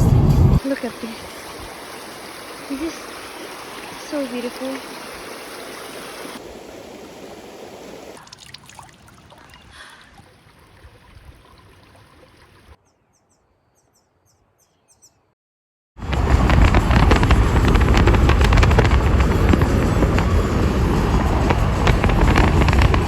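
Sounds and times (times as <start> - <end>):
water rushing over rocks: 0.6 - 9.3, 16.0 - 23.0
faint bird chirps: 12.8 - 15.3.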